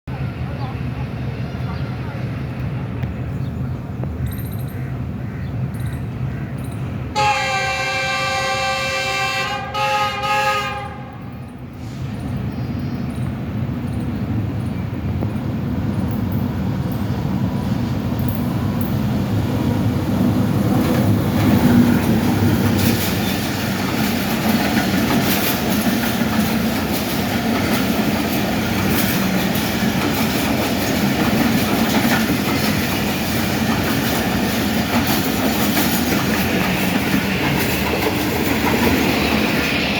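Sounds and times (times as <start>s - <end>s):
locomotive horn blasts: 7.2s - 11.4s
train wheels clattering over rail joints: 20.6s - 39.9s.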